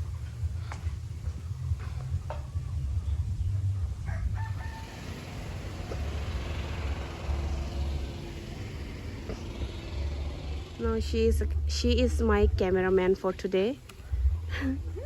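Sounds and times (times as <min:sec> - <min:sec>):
steady low rumble: 0:00.0 - 0:15.0
rooster crowing: 0:04.0 - 0:08.9.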